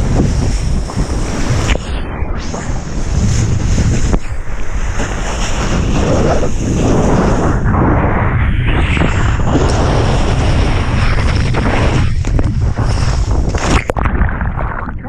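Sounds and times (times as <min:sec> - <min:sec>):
strong wind buffeting microphone: 0:00.0 - 0:15.0
rushing water: 0:09.0 - 0:15.0.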